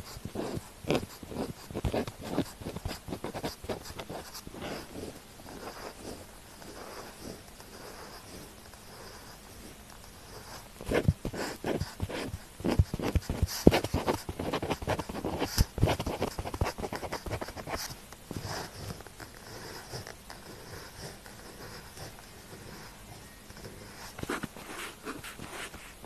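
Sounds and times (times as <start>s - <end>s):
pen scratching on paper: 0.0s - 23.0s, 23.6s - 26.0s.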